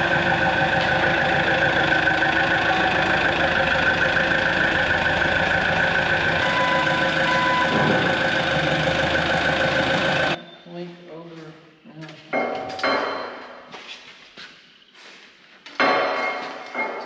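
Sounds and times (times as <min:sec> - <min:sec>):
machine engine idling: 0:00.0 - 0:10.4
steady whine: 0:00.0 - 0:10.4.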